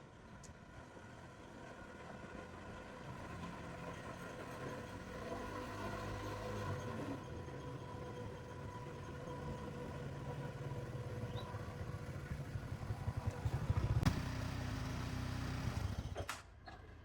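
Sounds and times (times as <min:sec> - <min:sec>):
vehicle engine running: 0:03.2 - 0:16.3.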